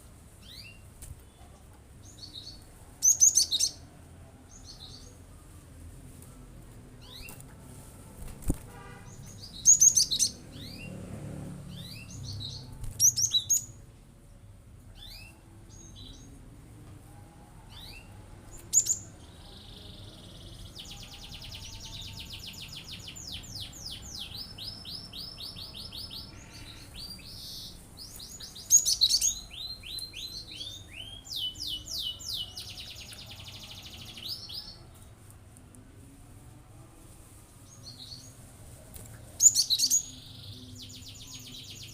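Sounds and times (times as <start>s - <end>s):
bird sharp high chirps: 8.7s - 10.9s, 11.7s - 13.8s.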